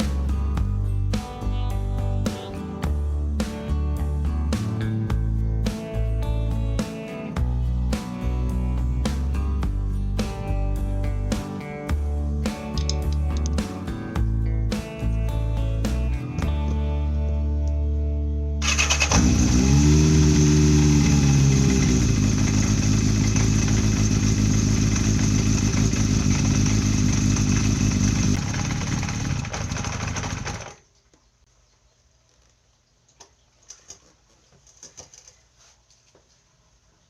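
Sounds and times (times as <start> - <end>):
motorcycle engine starting and revving: 18.6 - 30.8.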